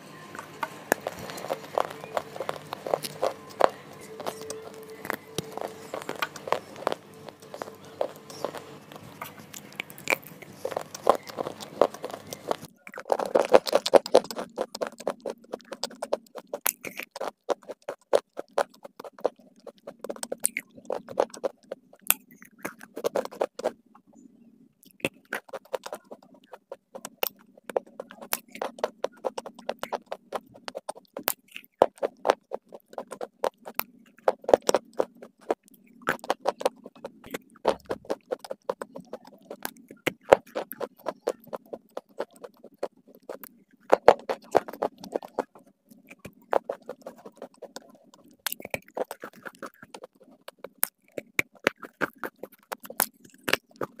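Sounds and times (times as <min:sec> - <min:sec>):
background hum: 0:00.0 - 0:54.0
crunching and chewing: 0:00.3 - 0:23.8, 0:24.8 - 0:54.0.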